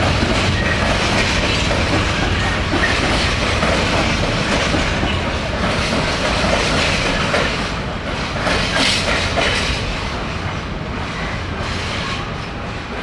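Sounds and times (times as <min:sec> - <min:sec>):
wheels clacking over rail joints: 0:00.0 - 0:10.3.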